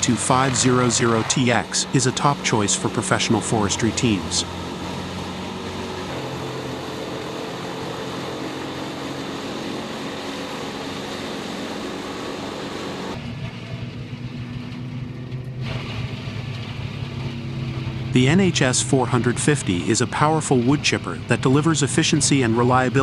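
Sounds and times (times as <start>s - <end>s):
broad rushing noise: 0.0s - 13.2s
wood chipper engine hum: 0.0s - 23.0s.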